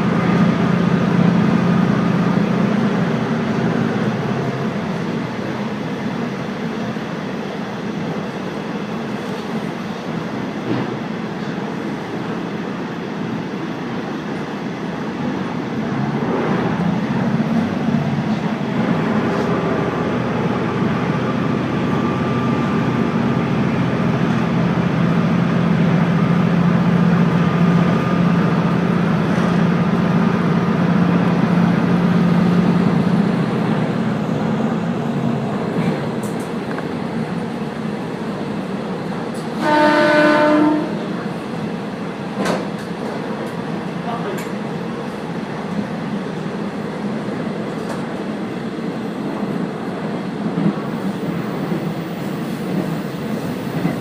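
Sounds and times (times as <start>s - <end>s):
railcar engine drone: 0.0s - 54.0s
train horn: 39.6s - 41.2s.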